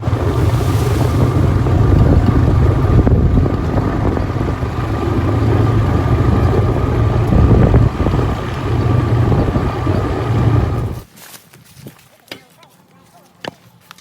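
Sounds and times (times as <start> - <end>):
engine deep rumble: 0.0 - 11.1
wind buffeting microphone: 0.0 - 11.1.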